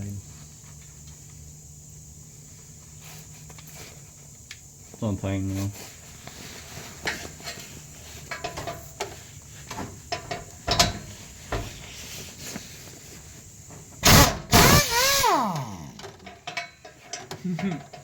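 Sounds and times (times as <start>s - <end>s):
sudden loud burst of noise: 14.0s - 16.0s.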